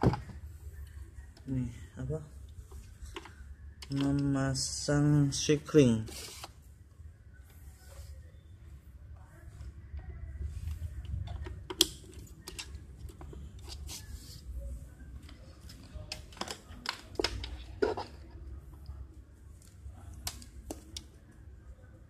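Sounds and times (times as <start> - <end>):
plastic parts clicking and knocking: 0.0 - 0.4, 16.1 - 18.2
low steady hum: 0.0 - 22.0.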